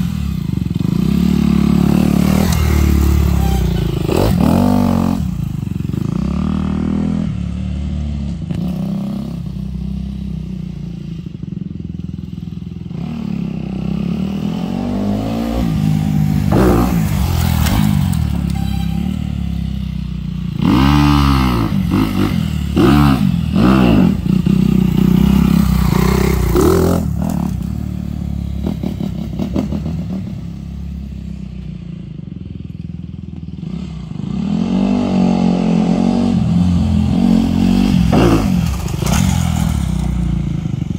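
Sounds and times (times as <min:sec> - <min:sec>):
dirt bike engine revving: 0:00.0 - 0:07.3, 0:12.9 - 0:30.3, 0:33.6 - 0:40.2.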